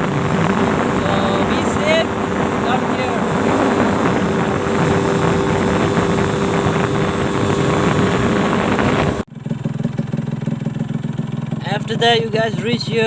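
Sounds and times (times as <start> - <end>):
wind noise on microphone: 0.0 - 9.3
motorcycle engine running: 0.0 - 13.0.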